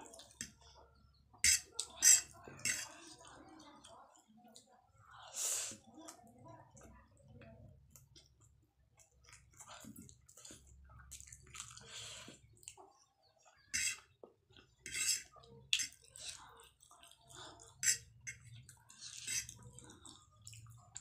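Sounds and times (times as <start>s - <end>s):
wet chewing and slurping noodles: 9.0s - 21.0s.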